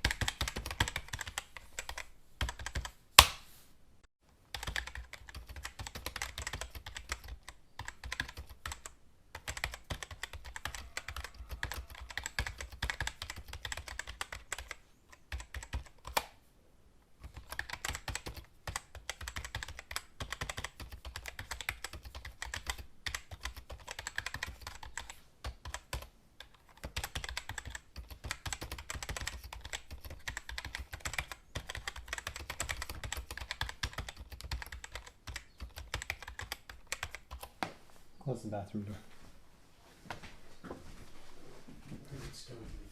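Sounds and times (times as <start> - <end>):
keyboard typing clicks: 4.5 - 16.3, 17.2 - 37.5.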